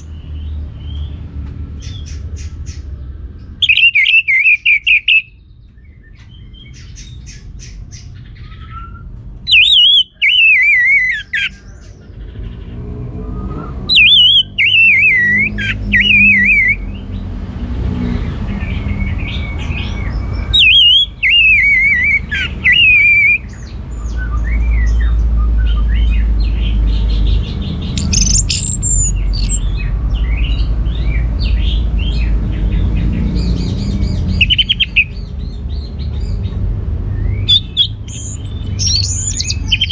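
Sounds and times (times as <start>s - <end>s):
soft bird chirps: 0.0s - 17.1s, 18.6s - 39.9s
thrush singing: 27.8s - 29.7s, 37.2s - 39.9s.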